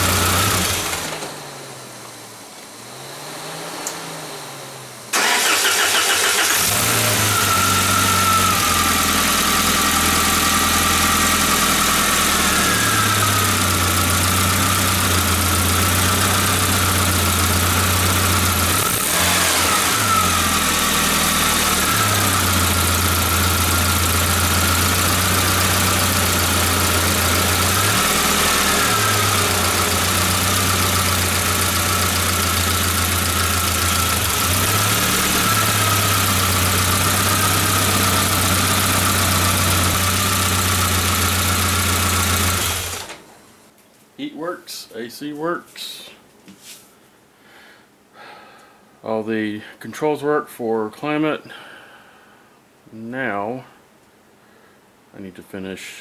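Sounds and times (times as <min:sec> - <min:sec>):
car engine idling: 0:00.0 - 0:02.0, 0:04.8 - 0:43.3.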